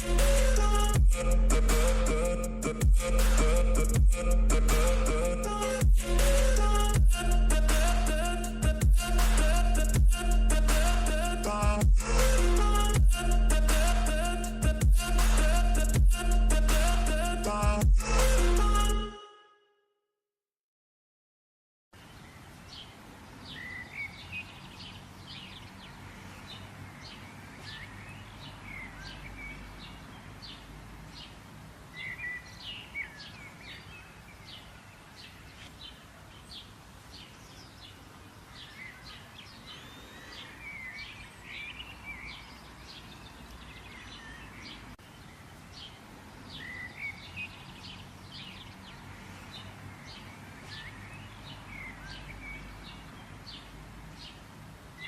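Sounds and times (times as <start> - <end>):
wild birds singing: 22.0 - 55.0.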